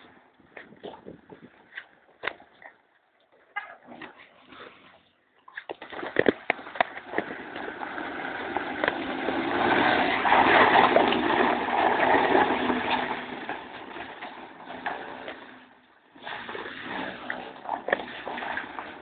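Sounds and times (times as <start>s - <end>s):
car driving over dirt: 5.8s - 19.0s.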